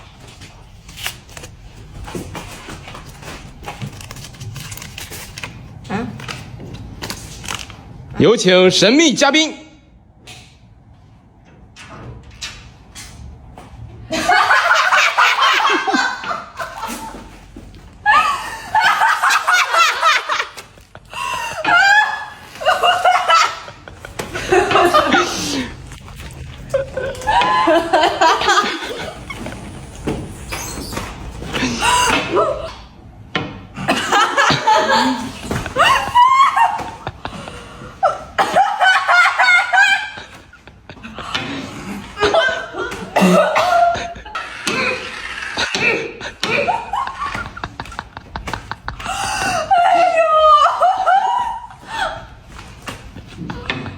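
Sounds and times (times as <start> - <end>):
people laughing loudly: 14.1 - 17.4, 18.0 - 29.8, 33.8 - 52.5.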